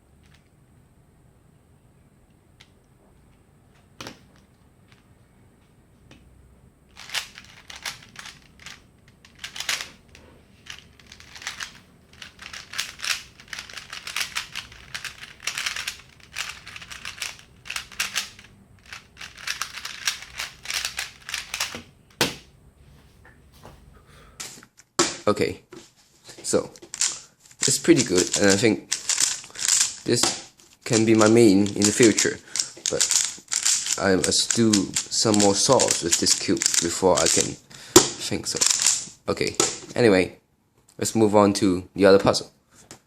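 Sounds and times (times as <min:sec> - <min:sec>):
plastic puzzle cube turning clatter: 0:06.9 - 0:21.8, 0:26.9 - 0:30.2, 0:30.9 - 0:37.6, 0:38.5 - 0:39.1.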